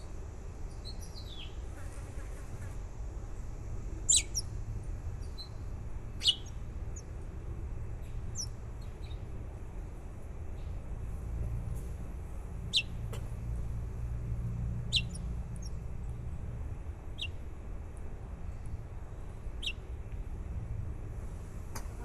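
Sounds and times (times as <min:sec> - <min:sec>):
steady low rumble: 0:02.8 - 0:22.0
baby birds peeping: 0:04.0 - 0:04.5, 0:05.2 - 0:07.1, 0:08.2 - 0:09.2, 0:12.7 - 0:13.3, 0:14.8 - 0:15.8.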